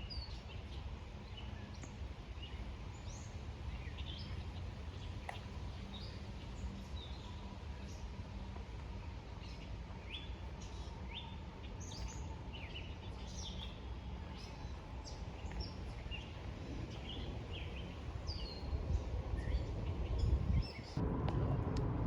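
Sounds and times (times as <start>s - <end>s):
small songbirds chirping: 0.0s - 21.0s
steady low rumble: 12.8s - 22.0s.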